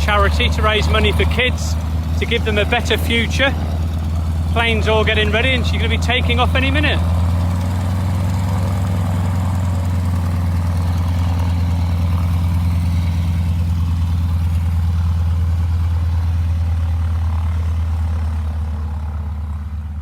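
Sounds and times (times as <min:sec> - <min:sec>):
plane piston engine idling: 0:00.0 - 0:20.0.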